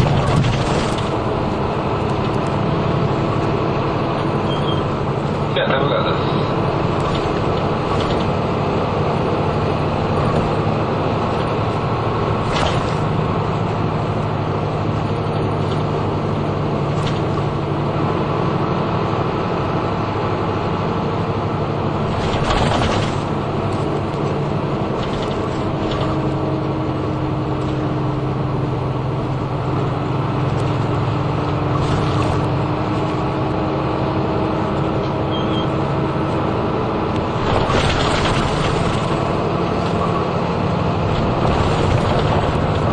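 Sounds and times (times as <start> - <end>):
short rattles or knocks: 0.0 - 1.3, 12.4 - 13.2, 22.0 - 26.5, 37.3 - 40.4
bus engine drone: 0.0 - 42.9
road and tyre noise: 0.0 - 42.9.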